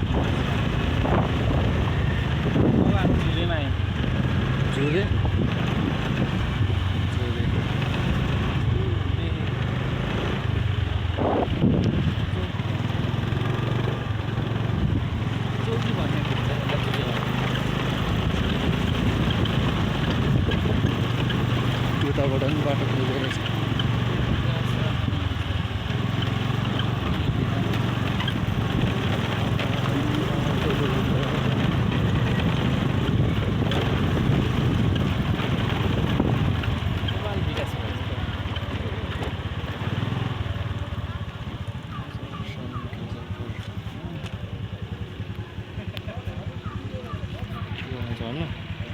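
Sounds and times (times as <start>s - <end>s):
wind noise on microphone: 0.0s - 4.5s, 5.1s - 6.8s, 10.5s - 13.7s, 17.8s - 21.7s, 31.1s - 37.1s
motorcycle engine running: 0.0s - 48.9s
wind rush noise: 11.1s - 12.3s, 32.7s - 37.0s.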